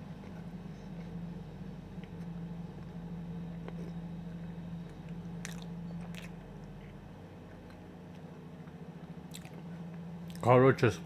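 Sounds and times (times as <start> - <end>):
low steady hum: 0.0 - 11.0
chewing chocolate: 4.9 - 6.4, 9.3 - 9.7, 10.3 - 10.5
wet mouth clicks: 9.3 - 9.6.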